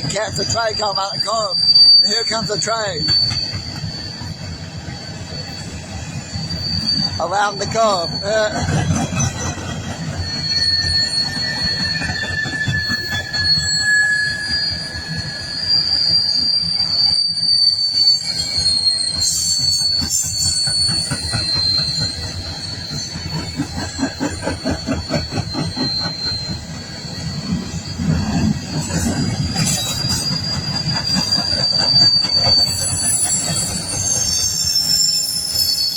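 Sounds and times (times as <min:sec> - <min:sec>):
rumble of rolling train cars: 0:00.0 - 0:35.9
train wheels squealing: 0:00.0 - 0:35.9.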